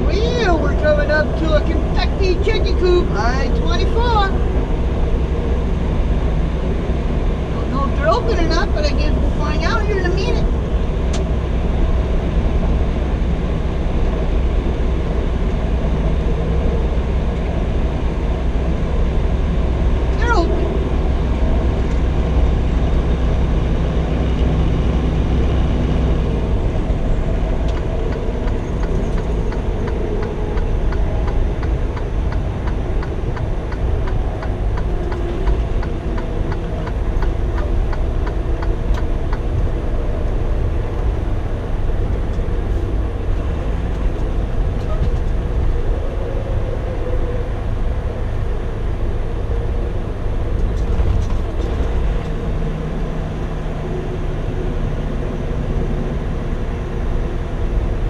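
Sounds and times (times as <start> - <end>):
diesel engine and road noise: 0.0 - 58.0
regular ticking: 27.6 - 39.6.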